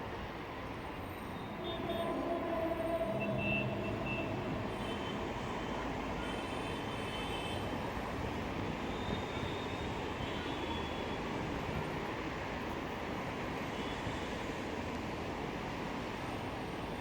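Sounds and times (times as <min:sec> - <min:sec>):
distant rumbling drone: 0:01.3 - 0:06.1.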